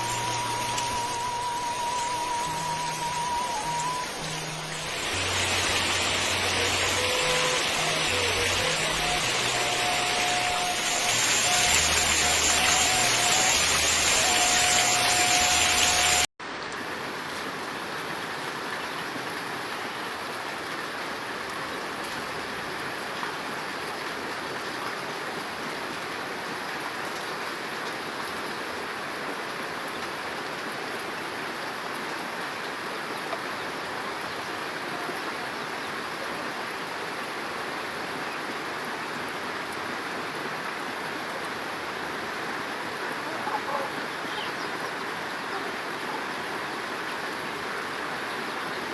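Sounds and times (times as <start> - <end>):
rushing noise with held note: 0.0 - 16.3
steady rain: 0.0 - 48.9.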